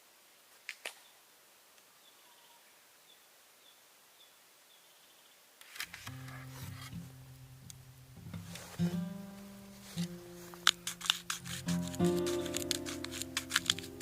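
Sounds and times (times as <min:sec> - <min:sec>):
faint high chirp: 0:02.0 - 0:05.4
acoustic guitar music: 0:05.9 - 0:14.0
sharp clicks: 0:10.6 - 0:14.0.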